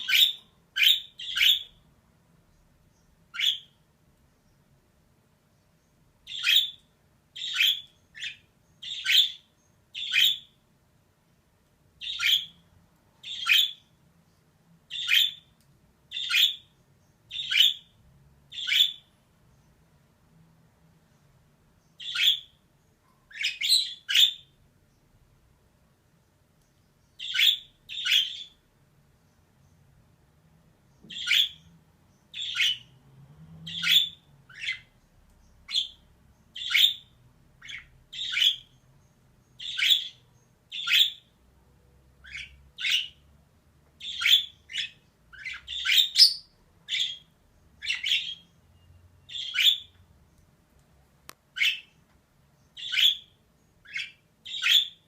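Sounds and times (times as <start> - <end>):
budgerigar chirping: 0.0 - 1.8, 3.3 - 3.8, 6.3 - 10.6, 12.0 - 12.6, 13.2 - 13.9, 14.9 - 15.5, 16.1 - 16.7, 17.3 - 17.9, 18.5 - 19.1, 22.0 - 22.6, 23.3 - 24.6, 27.2 - 28.6, 31.1 - 31.7, 32.3 - 32.9, 33.7 - 34.9, 35.7 - 38.8, 39.5 - 41.3, 42.2 - 43.2, 44.0 - 50.0, 51.6 - 52.0, 52.8 - 55.0.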